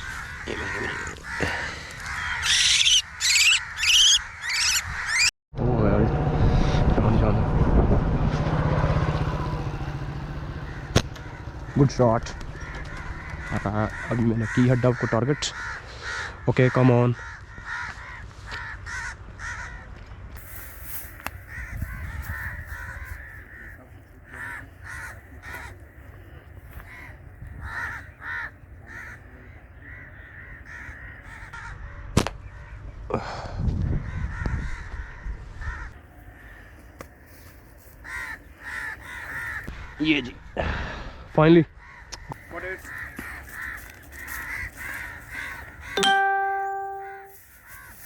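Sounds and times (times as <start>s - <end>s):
crows cawing: 0.0s - 5.3s, 10.5s - 20.0s, 21.3s - 32.7s, 34.0s - 40.6s, 41.7s - 46.2s, 47.5s - 48.0s.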